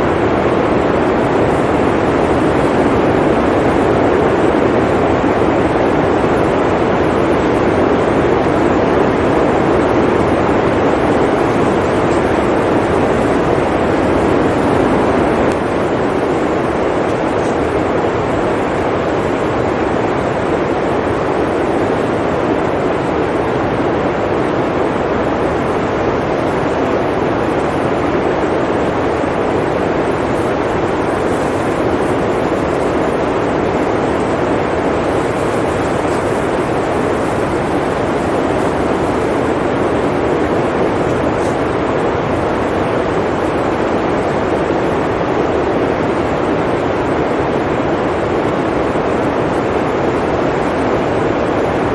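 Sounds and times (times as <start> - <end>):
blizzard wind blowing: 0.0 - 51.9.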